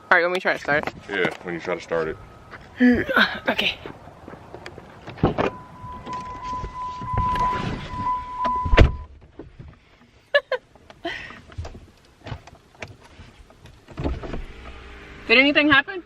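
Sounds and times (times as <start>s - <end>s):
electronic beep: 5.4s - 9.1s
loud thump: 7.1s - 9.1s.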